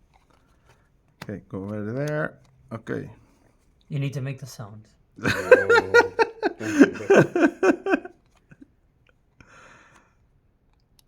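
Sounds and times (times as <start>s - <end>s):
man yelping syllables: 5.3s - 7.4s.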